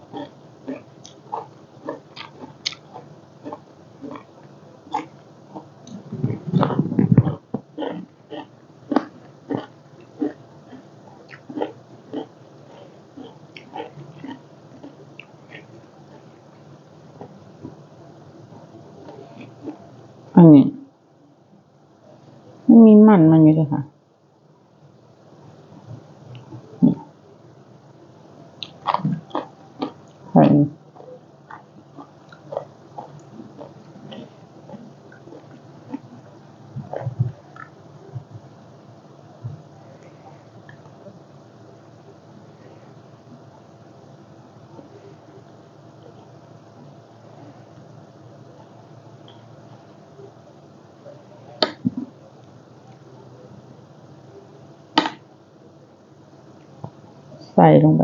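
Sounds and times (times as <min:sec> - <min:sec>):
person chewing and smacking food: 0:00.0 - 0:19.9, 0:28.6 - 0:30.3, 0:30.9 - 0:38.6, 0:39.4 - 0:41.2, 0:55.0 - 0:55.2.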